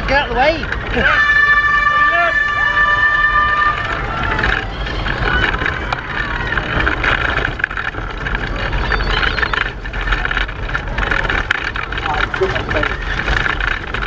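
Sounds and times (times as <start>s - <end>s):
pedal car rattling: 0.0s - 14.0s
road and wind rumble: 0.0s - 14.0s.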